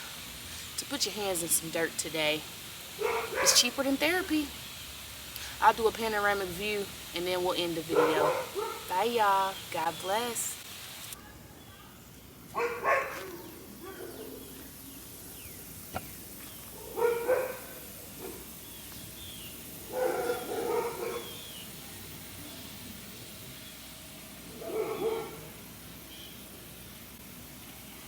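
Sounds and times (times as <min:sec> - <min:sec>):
dog barking: 0:03.0 - 0:03.8, 0:07.9 - 0:08.9, 0:12.5 - 0:14.4, 0:16.7 - 0:18.5, 0:19.9 - 0:21.4, 0:24.5 - 0:25.6.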